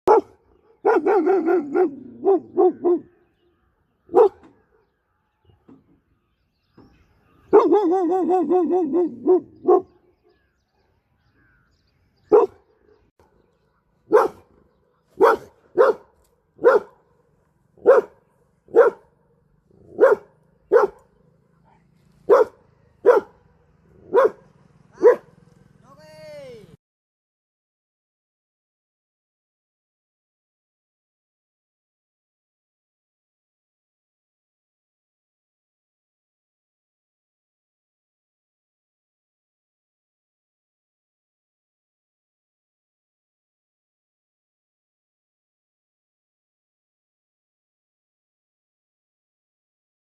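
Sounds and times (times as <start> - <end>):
dog barking: 0.1 - 3.1, 4.1 - 4.9, 7.5 - 10.0, 12.3 - 12.6, 14.1 - 14.5, 15.2 - 17.0, 17.8 - 19.1, 19.9 - 21.1, 21.7 - 23.4, 24.0 - 25.3
dog howling: 7.6 - 9.8.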